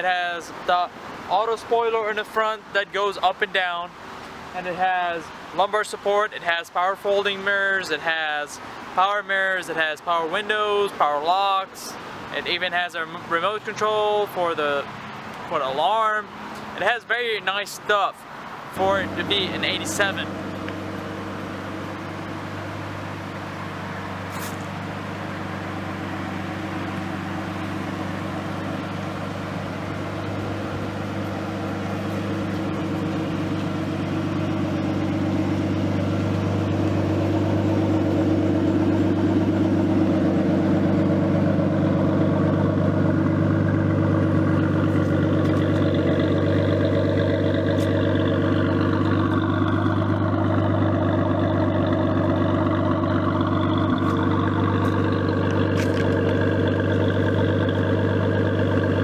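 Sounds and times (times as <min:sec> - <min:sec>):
car engine idling: 0:18.2 - 0:59.0
faint high turbo whine: 0:18.2 - 0:59.0.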